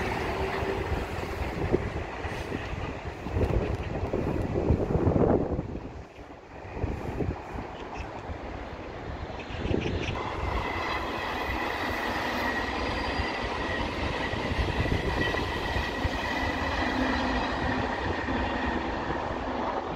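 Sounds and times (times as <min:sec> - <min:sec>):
wheels ringing on rail: 0:00.0 - 0:03.1, 0:10.1 - 0:19.7
train rail rumble: 0:00.0 - 0:19.9.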